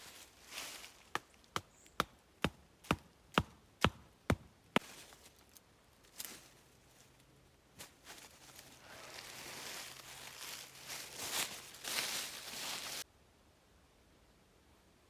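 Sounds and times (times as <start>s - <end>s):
chopping strikes: 1.2s - 4.5s.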